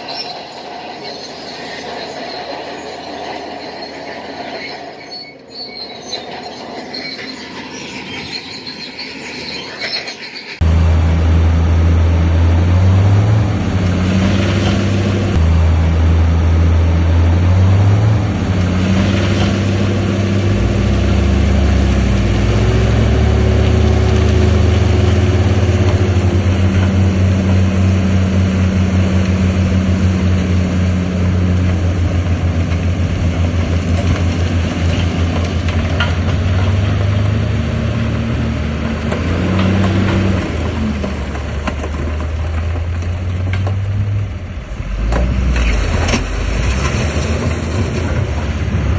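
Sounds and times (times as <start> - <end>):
heavy diesel engine running: 10.6 - 48.9.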